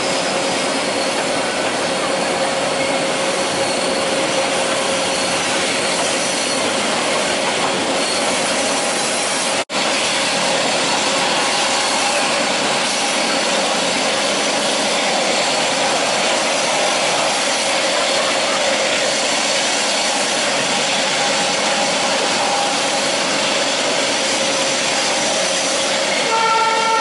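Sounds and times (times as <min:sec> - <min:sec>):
train wheels on rails: 0:00.0 - 0:27.0
train horn: 0:26.2 - 0:27.0.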